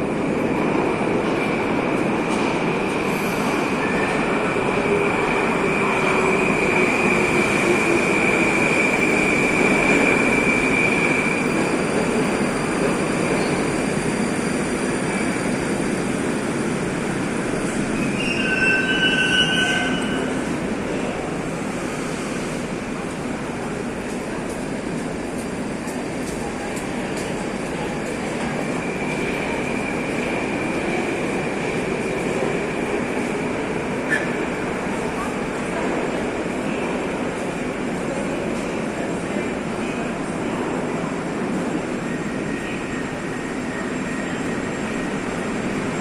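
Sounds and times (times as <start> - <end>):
train wheels rumbling on rail: 0.0 - 46.0
high wheel squeal: 18.0 - 20.4.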